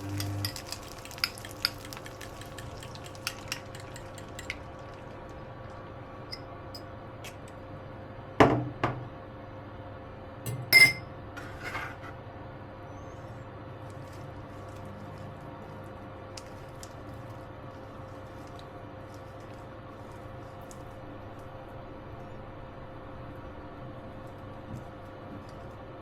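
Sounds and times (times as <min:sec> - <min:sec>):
dishes and utensils clinking: 0:00.0 - 0:04.7, 0:10.5 - 0:12.0
faint steady hum: 0:00.0 - 0:26.0.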